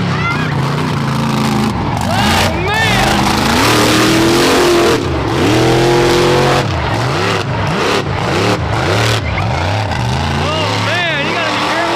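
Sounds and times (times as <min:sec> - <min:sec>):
truck engine revving: 0:00.0 - 0:11.9
steady rushing noise: 0:01.0 - 0:08.8.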